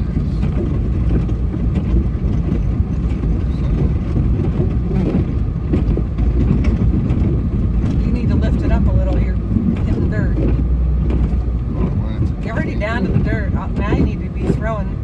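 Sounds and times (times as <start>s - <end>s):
plow blade scraping snow: 0.0s - 15.0s
snowplow engine rumbling: 0.0s - 15.0s.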